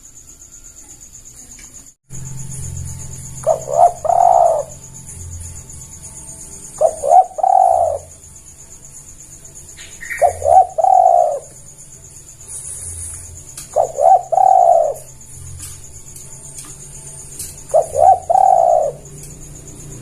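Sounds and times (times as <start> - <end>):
dove cooing: 3.2 - 4.9, 5.6 - 8.3, 9.8 - 11.7, 12.4 - 19.2.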